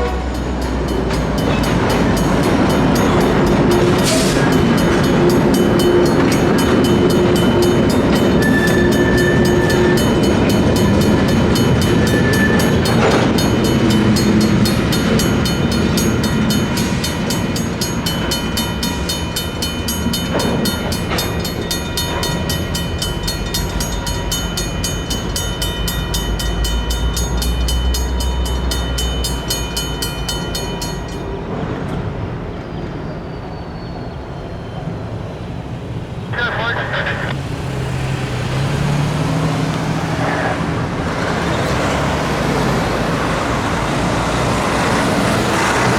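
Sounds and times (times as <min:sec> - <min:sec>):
freight train rumble: 0:00.0 - 0:45.9
mechanical crossing bell ringing: 0:00.3 - 0:31.4.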